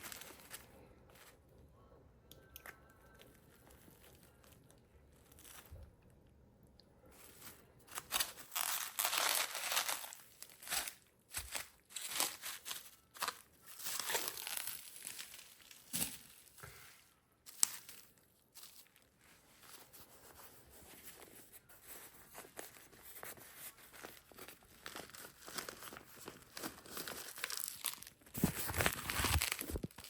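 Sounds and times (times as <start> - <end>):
wrapping rustling and tearing: 0.0 - 1.4, 3.3 - 5.8, 7.2 - 30.0.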